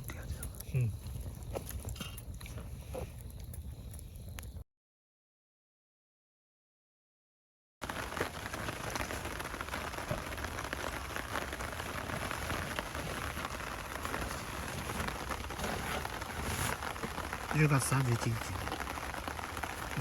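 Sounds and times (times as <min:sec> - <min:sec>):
steady rain falling: 0:07.8 - 0:20.0.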